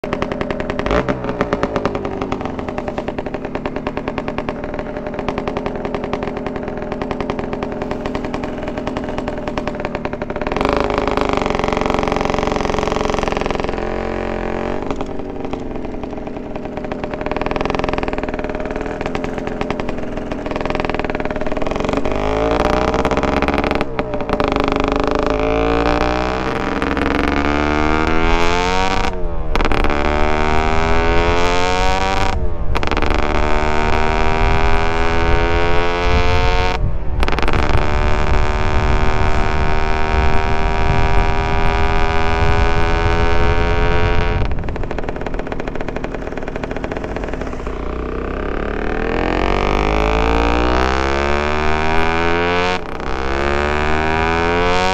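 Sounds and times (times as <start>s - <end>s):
two-stroke motorcycle engine revving: 0.0s - 54.9s.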